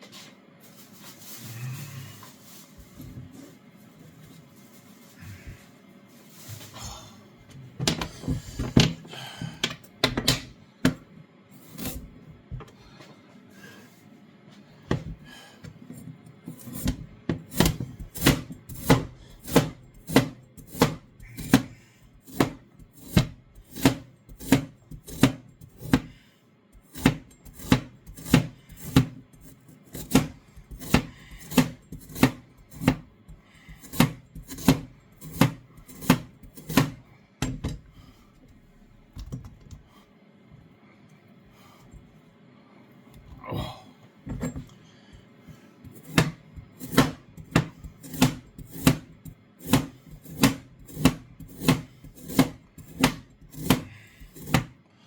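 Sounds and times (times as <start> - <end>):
knife chopping carrot on board: 16.7 - 26.2, 26.8 - 29.2, 29.9 - 37.8, 46.0 - 54.8.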